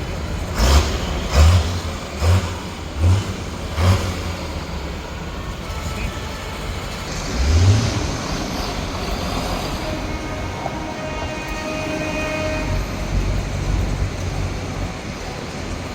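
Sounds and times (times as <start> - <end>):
tractor engines rumbling and revving: 0.0 - 15.9
horn sounding: 3.8 - 15.0.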